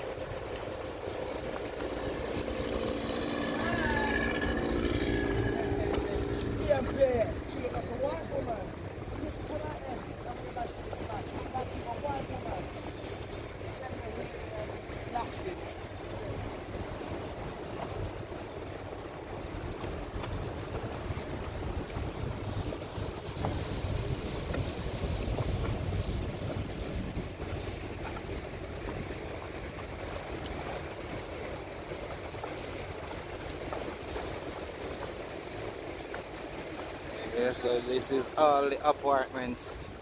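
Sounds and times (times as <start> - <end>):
boat rumble: 0.0 - 40.0
water: 0.0 - 40.0
wind noise on microphone: 19.5 - 37.5.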